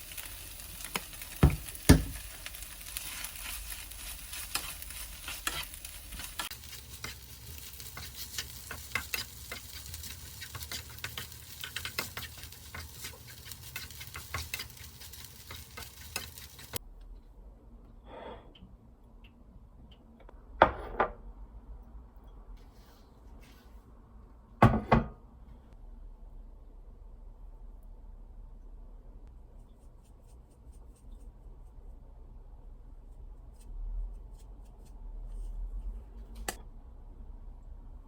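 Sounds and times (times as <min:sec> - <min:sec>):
food sizzling in a frying pan: 0:00.0 - 0:16.8
utensil clicking while stirring: 0:03.4 - 0:16.8.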